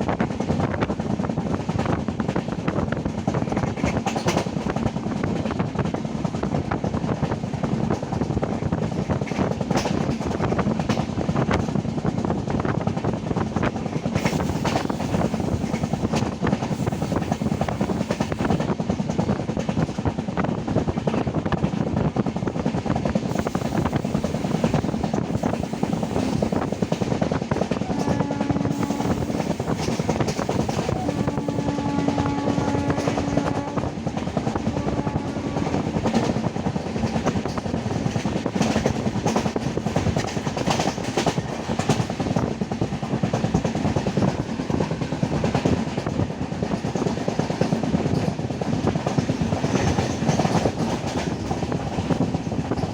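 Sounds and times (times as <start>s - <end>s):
train wheels rattling on track: 0.0s - 52.9s.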